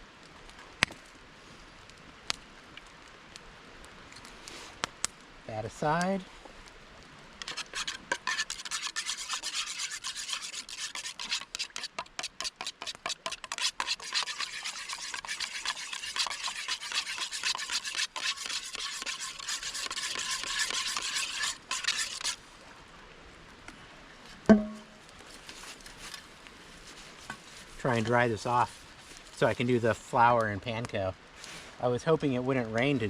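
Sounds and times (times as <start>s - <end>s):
rasping rubbing and scraping: 7.4s - 22.4s.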